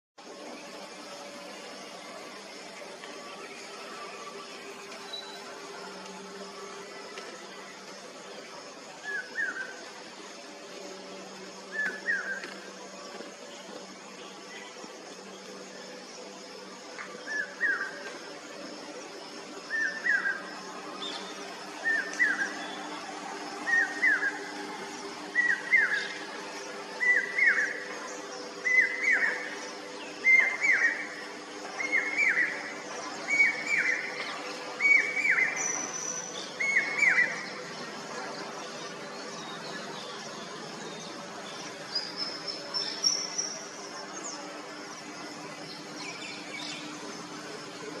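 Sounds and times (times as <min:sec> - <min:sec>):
steady low hum: 0:00.2 - 0:48.0
cuckoo calling: 0:11.7 - 0:12.6, 0:19.6 - 0:22.9, 0:23.6 - 0:24.6, 0:25.2 - 0:37.6
high bird calls: 0:19.6 - 0:40.5.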